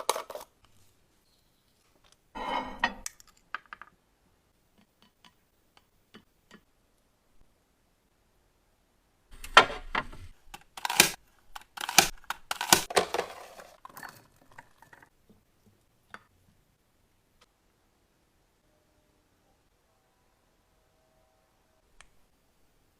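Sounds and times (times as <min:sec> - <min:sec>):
kitchen items knocking and clattering: 0:00.0 - 0:00.6, 0:12.0 - 0:15.2.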